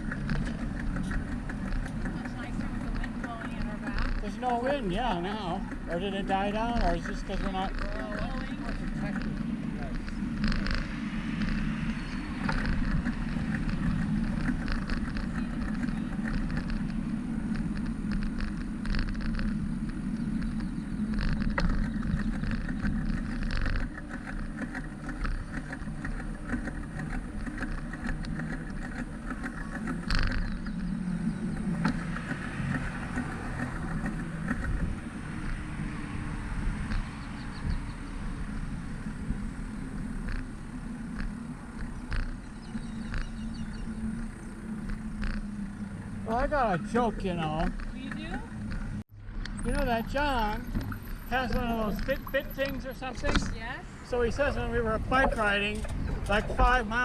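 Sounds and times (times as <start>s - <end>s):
light clicks and rattles: 0.0s - 35.8s
wind and road rumble: 0.0s - 57.0s.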